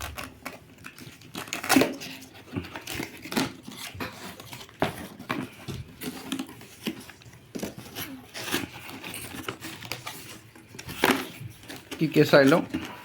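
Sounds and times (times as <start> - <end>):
plastic and cardboard crinkling: 0.0 - 13.0.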